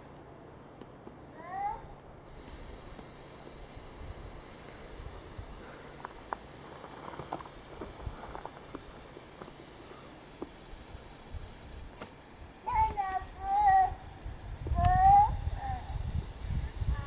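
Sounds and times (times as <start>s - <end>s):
high-pitched hiss: 2.2s - 17.0s
faint ticks: 2.3s - 13.8s, 14.6s - 15.8s.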